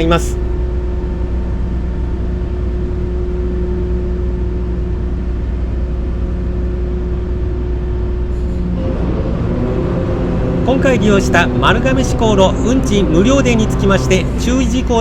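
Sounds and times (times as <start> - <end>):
ferry engine drone: 0.0 - 15.0
steady hum: 9.6 - 15.0.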